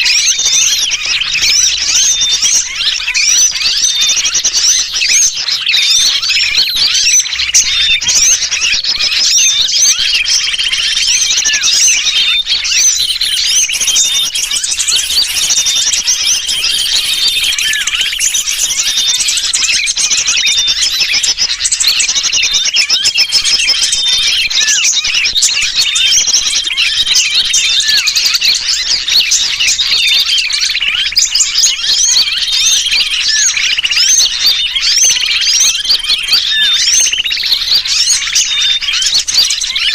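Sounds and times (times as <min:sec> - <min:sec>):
bird distress calls: 0:00.0 - 0:39.9
chorus of small bird calls: 0:00.0 - 0:39.9.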